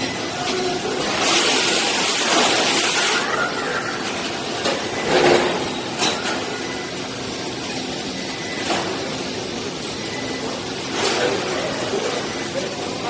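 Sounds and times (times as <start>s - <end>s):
machine hum with high tone: 0.0s - 13.0s
hiss: 1.2s - 3.3s
loud noisy clunk: 4.6s - 6.5s.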